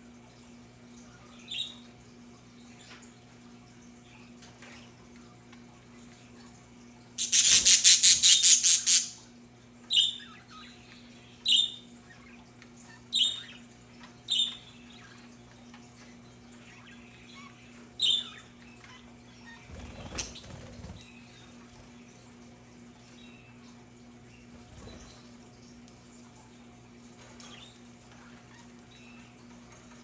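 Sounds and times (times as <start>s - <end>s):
budgerigars squawking: 7.2s - 9.2s.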